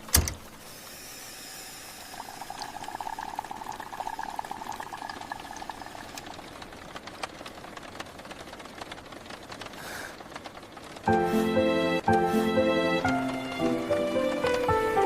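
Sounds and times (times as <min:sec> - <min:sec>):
liquid bubbling: 0:02.0 - 0:06.7.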